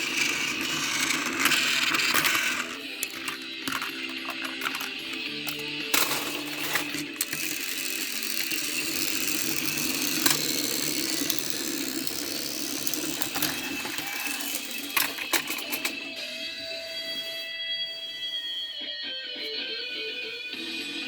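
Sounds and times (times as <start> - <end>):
wheels and couplings clicking: 0.0 - 16.0
toy train motors whirring: 0.0 - 16.8.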